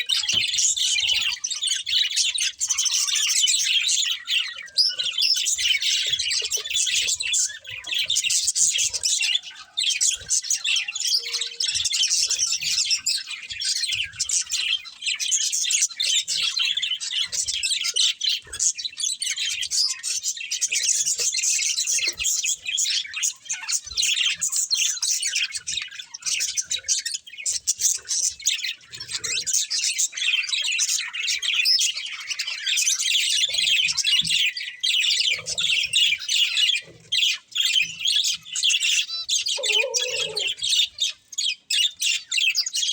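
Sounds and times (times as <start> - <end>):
budgerigars chirping: 0.0 - 42.9
budgerigar squawks: 38.8 - 41.2.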